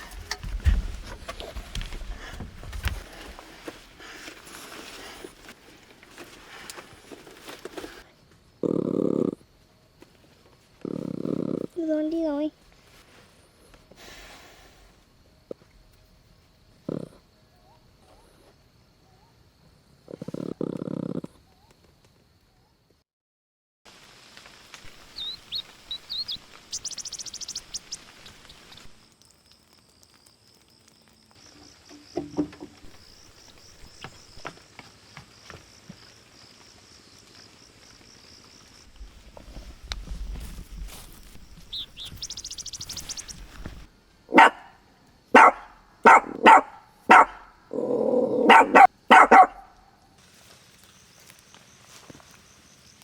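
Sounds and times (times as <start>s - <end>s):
insects buzzing: 24.0s - 53.0s
small bird calling: 24.8s - 29.0s, 41.4s - 43.8s
dog barking: 44.3s - 47.6s, 48.3s - 49.8s.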